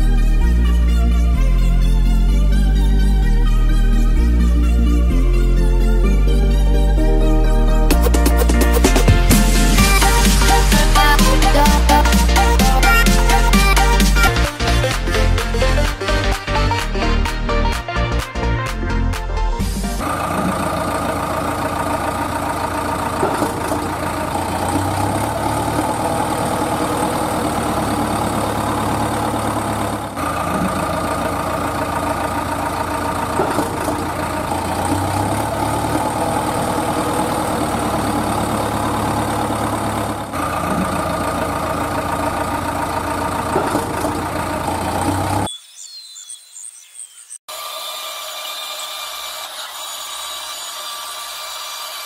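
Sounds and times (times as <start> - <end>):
heavy vehicle engine idling: 0.0 - 17.3, 19.6 - 45.5.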